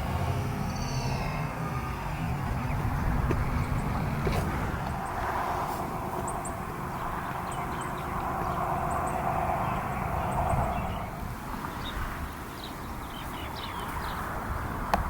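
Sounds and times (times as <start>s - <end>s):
low rumble: 0.0s - 11.7s
small birds chirping: 0.4s - 15.0s.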